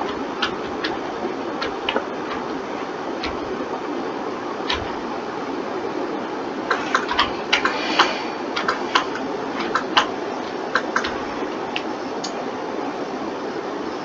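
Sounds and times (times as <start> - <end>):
steady background hiss: 0.0 - 14.0
mouse and keyboard clicks: 4.7 - 5.0, 6.7 - 12.4.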